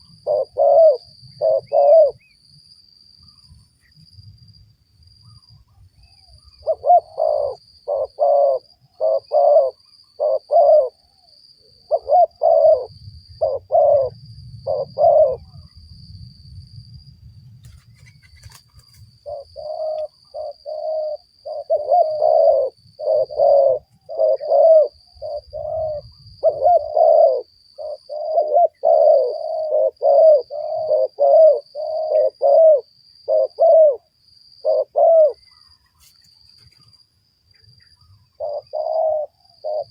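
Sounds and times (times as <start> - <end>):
doves cooing: 0.0 - 2.3, 6.1 - 15.7, 18.0 - 35.7, 38.0 - 39.9
faint high-pitched whine: 0.0 - 39.9.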